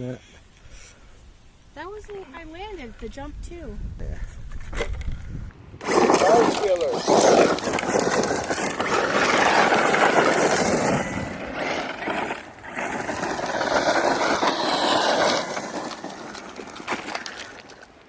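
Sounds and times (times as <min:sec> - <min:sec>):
tyres on gravel: 0:04.4 - 0:18.0
rc truck motor whine: 0:05.8 - 0:17.1.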